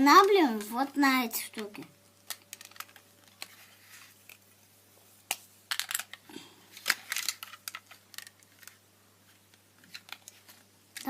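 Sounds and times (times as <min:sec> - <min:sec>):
plastic bricks clicking: 0:02.2 - 0:03.6, 0:05.7 - 0:06.2, 0:06.8 - 0:08.8.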